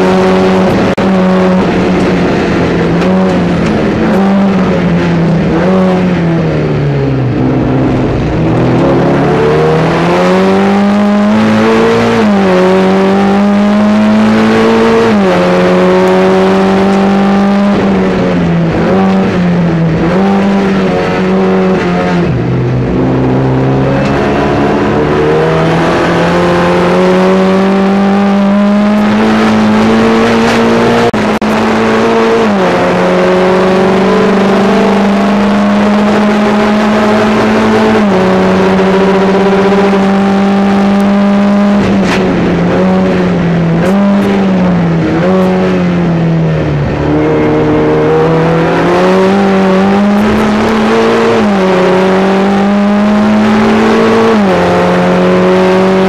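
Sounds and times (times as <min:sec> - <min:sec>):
race car engine accelerating: 0:00.0 - 0:56.0.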